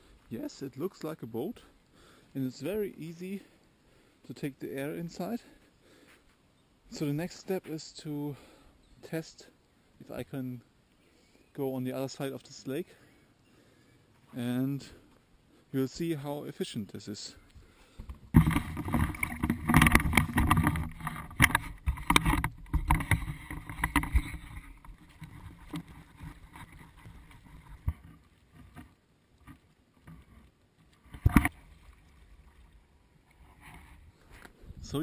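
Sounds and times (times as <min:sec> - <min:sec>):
water splashing: 0:18.3 - 0:34.2.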